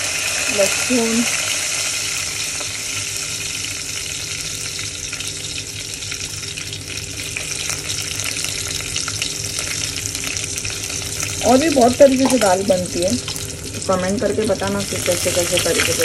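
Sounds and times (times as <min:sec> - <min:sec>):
spices sizzling in hot ghee: 0:00.0 - 0:16.0
small crackles: 0:04.4 - 0:13.9.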